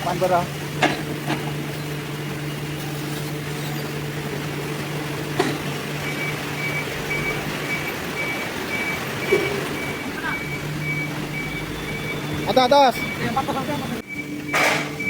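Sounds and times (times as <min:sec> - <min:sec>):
factory machinery hum: 0:00.0 - 0:15.0
electronic warning beeper: 0:06.0 - 0:15.0.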